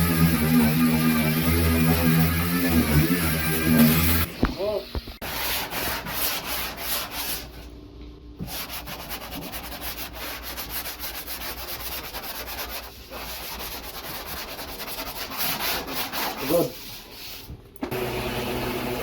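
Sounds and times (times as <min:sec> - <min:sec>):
sandpaper rubbing on steel: 0:08.5 - 0:17.4.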